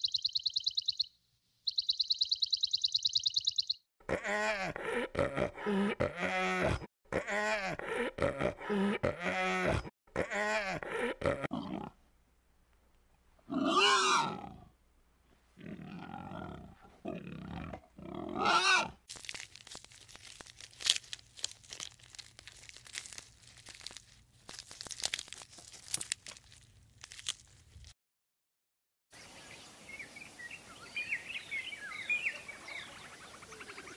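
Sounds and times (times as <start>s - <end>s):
animal calling: 13.5s - 14.6s, 18.0s - 19.0s
crunching and crackling: 19.0s - 28.0s.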